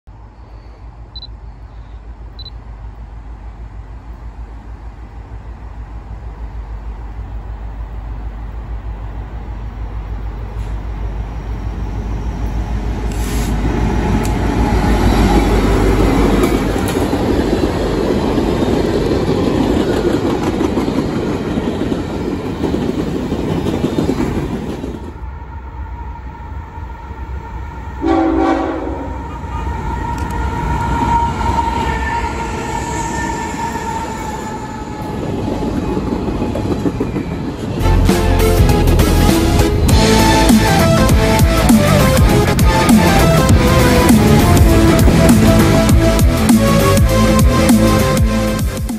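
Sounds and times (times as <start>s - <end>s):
freight train rumbling: 0.1s - 48.9s
train air horn blast: 28.0s - 34.5s, 40.0s - 48.7s.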